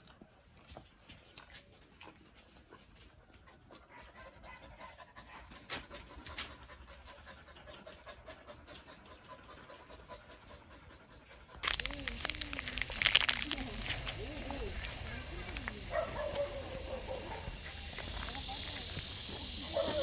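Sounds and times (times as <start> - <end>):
dog panting softly: 2.7 - 11.6
sharp clicks: 11.6 - 16.7.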